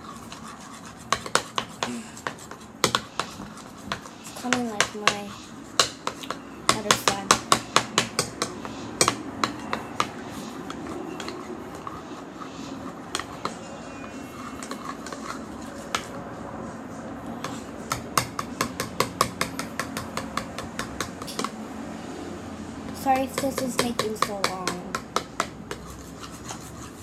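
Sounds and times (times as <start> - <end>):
spoon clinking against a bowl: 21.2 - 21.6.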